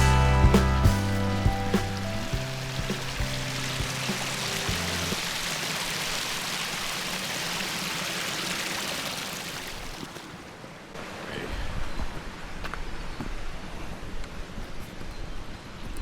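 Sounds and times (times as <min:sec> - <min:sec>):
water rushing over stones: 0:01.1 - 0:11.6.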